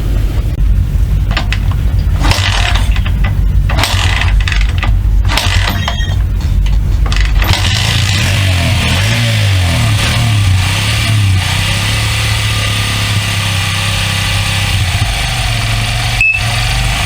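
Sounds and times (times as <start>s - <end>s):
small engine throbbing: 0.7s - 17.0s
mechanical rattle: 1.1s - 12.5s.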